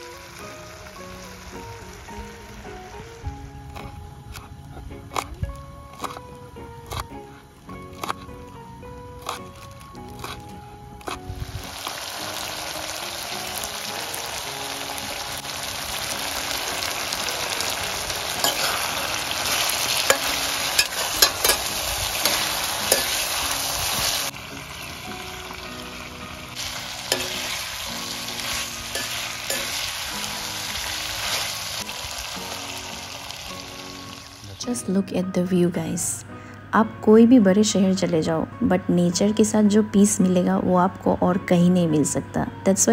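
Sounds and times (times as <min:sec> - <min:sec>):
curry sizzling in a pan: 0:00.0 - 0:03.9, 0:11.1 - 0:34.6
metal spoon stirring: 0:18.4 - 0:24.3, 0:26.6 - 0:30.0
spoon knocking against pan: 0:20.1 - 0:23.3, 0:27.1 - 0:27.6.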